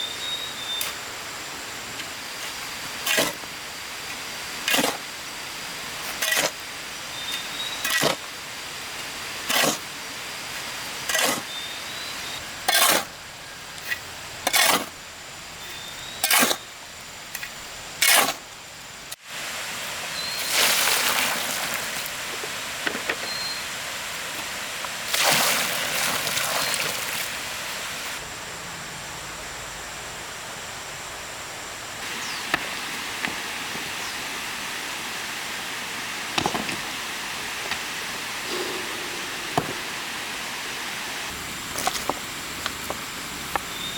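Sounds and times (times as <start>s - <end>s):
hand tool strikes or scrapes: 11.1s - 11.5s, 38.4s - 40.2s.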